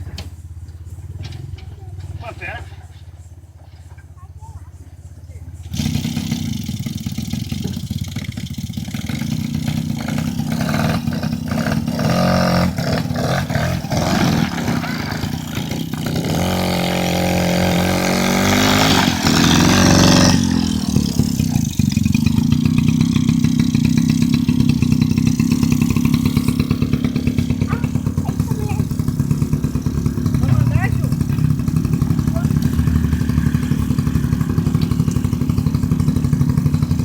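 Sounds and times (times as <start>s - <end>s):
quad bike engine revving: 0.0s - 37.0s.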